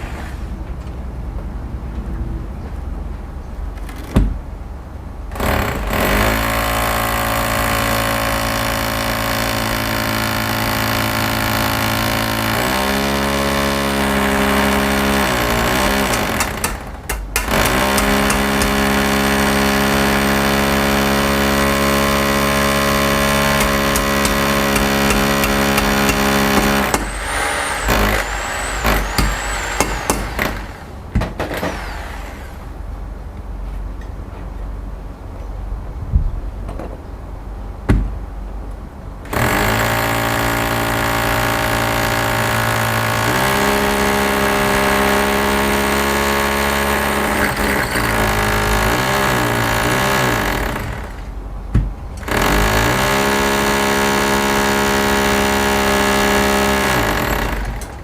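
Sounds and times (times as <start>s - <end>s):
motor humming: 23.3s - 31.0s
high whistling glides: 26.1s - 31.0s.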